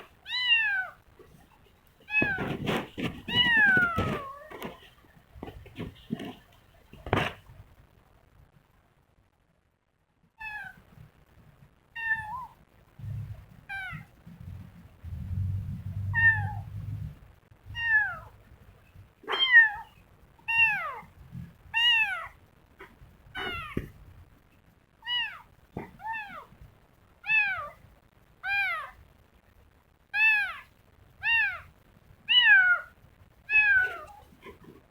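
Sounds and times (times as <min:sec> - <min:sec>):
kitten mewing: 0:00.0 - 0:01.5, 0:02.1 - 0:04.8, 0:16.1 - 0:16.7, 0:17.8 - 0:18.4, 0:19.2 - 0:21.1, 0:21.7 - 0:23.9, 0:25.0 - 0:26.5, 0:27.2 - 0:27.8, 0:28.4 - 0:29.0, 0:30.2 - 0:31.7, 0:33.5 - 0:34.9
low rumble: 0:14.3 - 0:17.9.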